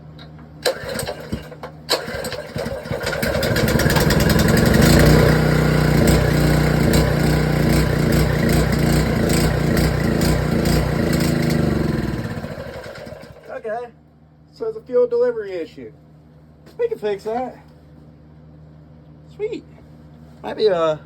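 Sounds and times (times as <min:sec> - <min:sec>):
engine pull-started: 0:00.6 - 0:13.5
engine running choppy: 0:00.7 - 0:13.5.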